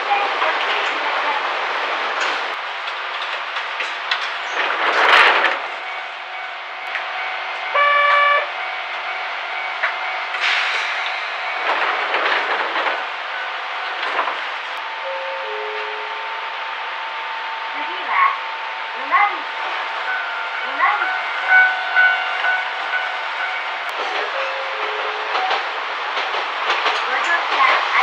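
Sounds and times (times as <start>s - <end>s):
train wheel and rail noise: 0.0s - 28.0s
train horn blast: 6.4s - 10.3s, 20.0s - 23.9s.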